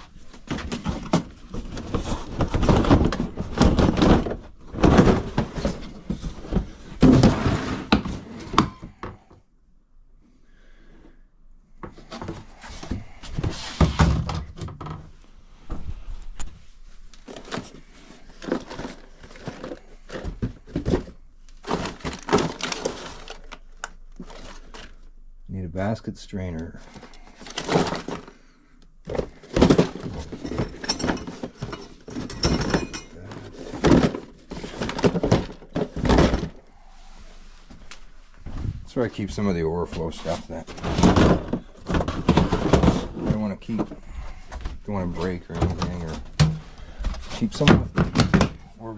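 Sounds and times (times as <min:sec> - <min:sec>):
parts and boxes clattering: 0:00.0 - 0:09.4, 0:11.8 - 0:15.8, 0:17.1 - 0:25.1, 0:26.6 - 0:36.9, 0:38.4 - 0:48.8.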